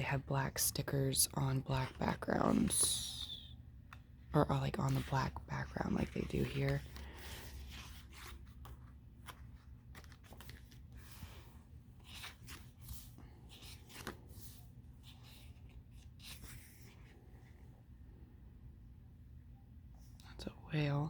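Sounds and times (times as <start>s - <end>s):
pages rustling and crinkling: 3.8s - 17.3s.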